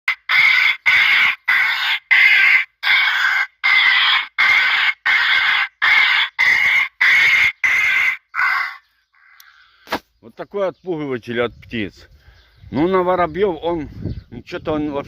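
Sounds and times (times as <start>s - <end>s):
recorded bird cries from loudspeaker: 0.1s - 11.0s.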